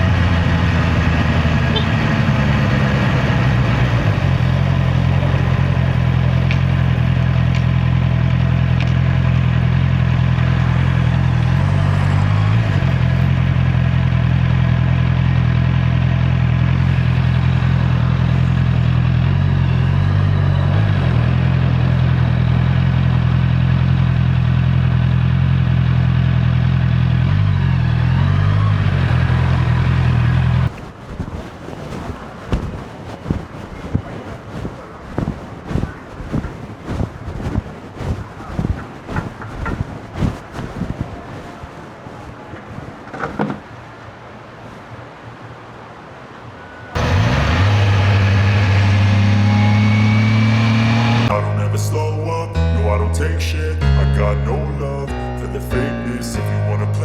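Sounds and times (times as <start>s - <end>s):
motorcycle engine running: 0.0s - 34.2s, 47.0s - 51.6s.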